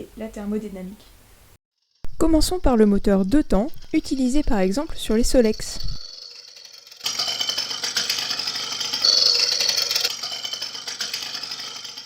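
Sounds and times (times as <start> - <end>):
small two-stroke engine running: 1.8 - 12.0.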